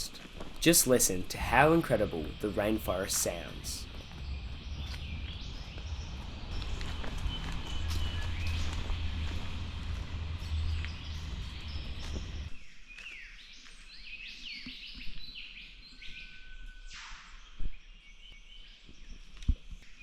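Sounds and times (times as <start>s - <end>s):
birds chirping and whistling: 3.8s - 12.5s.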